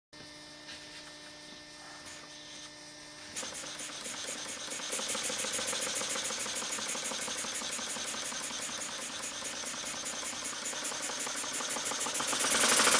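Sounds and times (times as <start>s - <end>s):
model steam engine chuffing: 3.4s - 12.9s.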